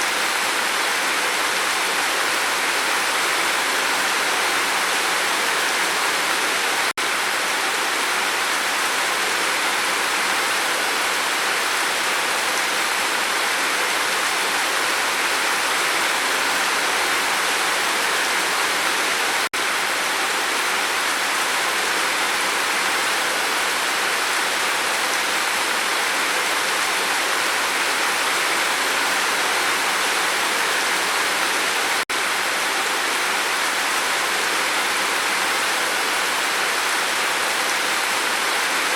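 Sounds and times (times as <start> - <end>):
rain falling on a roof: 0.0 - 38.9.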